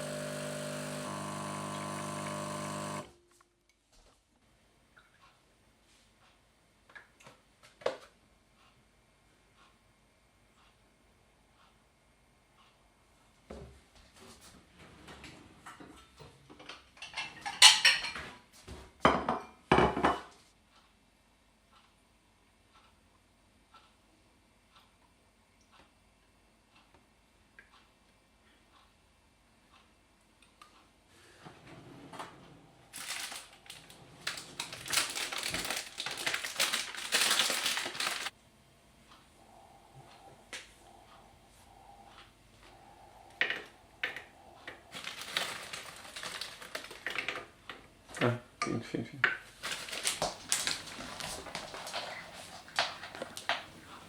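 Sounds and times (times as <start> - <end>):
dishes and cutlery clattering: 16.7 - 18.3
crisp crunching: 33.0 - 38.3, 45.0 - 47.2, 49.6 - 54.0.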